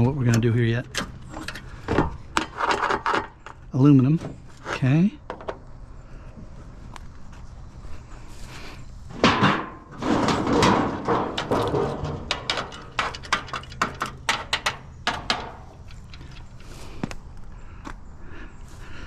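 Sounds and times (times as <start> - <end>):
metal clanks and knocks: 0.8 - 3.6, 9.1 - 16.8
scrap metal scraping rattle: 0.9 - 3.6, 9.1 - 17.0
scrap metal bang: 9.1 - 16.6.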